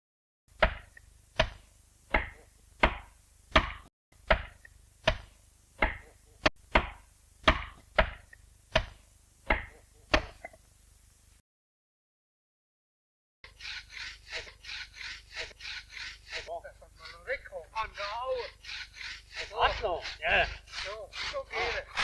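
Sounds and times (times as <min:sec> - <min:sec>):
axe chopping tree trunk: 0:00.6 - 0:06.1, 0:06.7 - 0:10.4.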